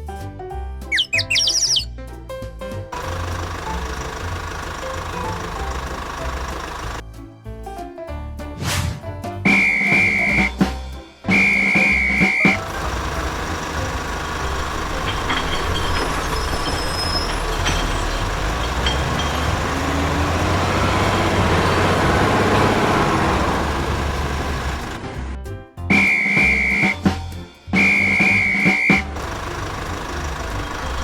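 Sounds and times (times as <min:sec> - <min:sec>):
heavy vehicle engine rumbling: 0:00.9 - 0:01.9, 0:02.6 - 0:07.1, 0:09.5 - 0:31.0
high steady whistle: 0:09.5 - 0:10.6, 0:11.3 - 0:12.6, 0:25.9 - 0:27.0, 0:27.8 - 0:29.1.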